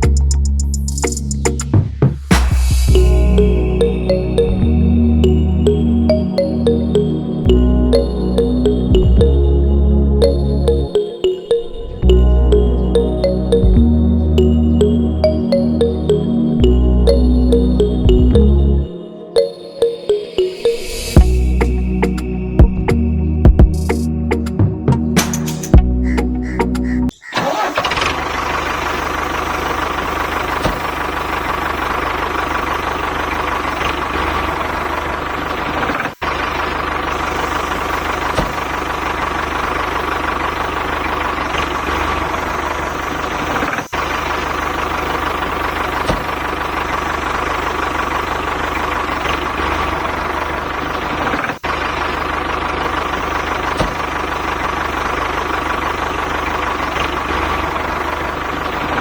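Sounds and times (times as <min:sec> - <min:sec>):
machine engine running: 0:25.8 - 0:59.0.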